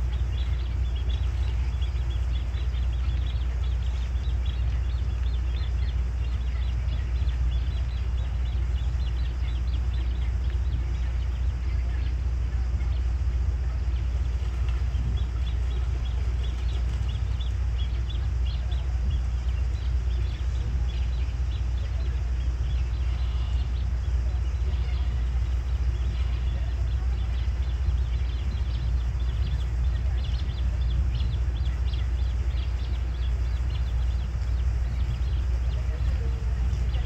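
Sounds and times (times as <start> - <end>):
high-pitched bird chirps: 0.0 - 37.0
steady low rumble: 0.0 - 37.0.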